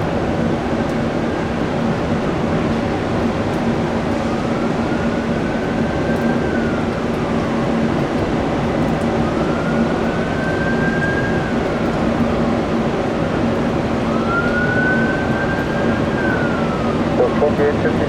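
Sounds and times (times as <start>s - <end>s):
jet engine noise: 0.0s - 18.0s
siren wailing: 4.3s - 8.0s, 9.0s - 18.0s.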